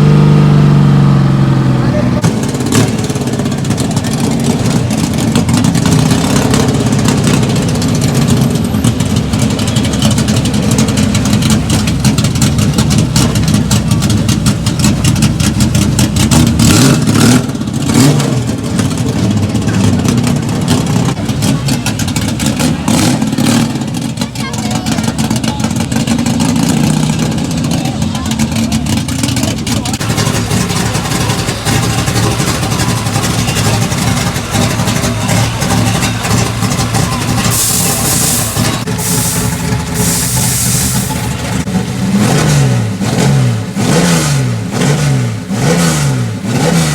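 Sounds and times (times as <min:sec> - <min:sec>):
car engines revving: 0:00.0 - 0:46.9
voices: 0:01.7 - 0:02.3, 0:19.0 - 0:41.9.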